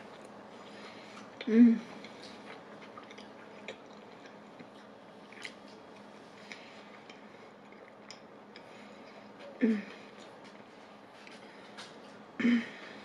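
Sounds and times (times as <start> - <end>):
person chewing: 0.0 - 12.2
wet mouth clicks: 1.2 - 5.8, 6.5 - 8.7.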